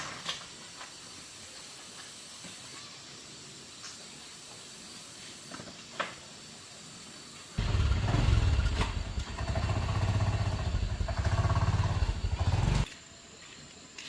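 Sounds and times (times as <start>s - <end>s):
small motorcycle engine running: 7.6s - 12.9s.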